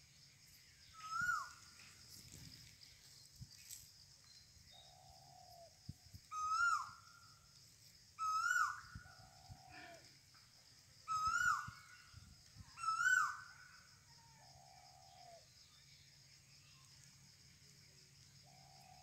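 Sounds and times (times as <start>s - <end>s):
bird hooting calls: 1.0s - 1.6s, 6.3s - 7.0s, 8.2s - 10.0s, 11.0s - 15.4s.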